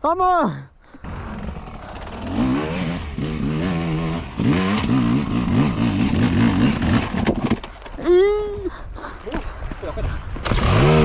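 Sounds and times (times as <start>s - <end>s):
two-stroke motorcycle engine revving: 1.0s - 7.6s, 10.4s - 11.0s.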